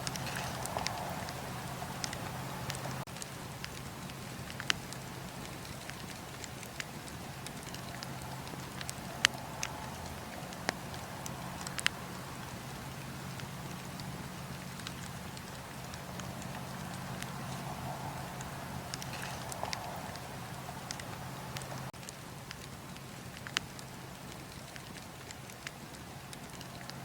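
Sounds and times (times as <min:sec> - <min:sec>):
low hum: 0:00.0 - 0:06.3, 0:07.0 - 0:21.9
campfire crackling and popping: 0:00.0 - 0:27.0.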